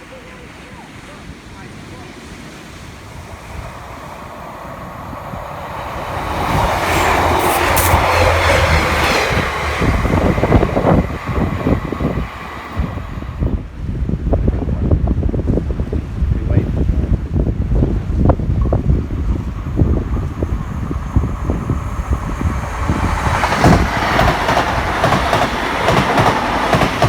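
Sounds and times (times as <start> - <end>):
train engine drone: 1.7 - 14.1, 17.6 - 27.0
train wheels rattling: 3.1 - 13.6, 18.7 - 27.0.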